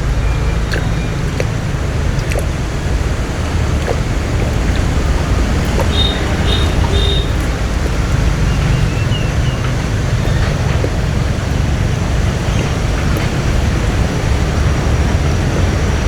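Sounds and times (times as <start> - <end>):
boat engine rumble: 0.0 - 16.0
water noise: 0.0 - 16.0.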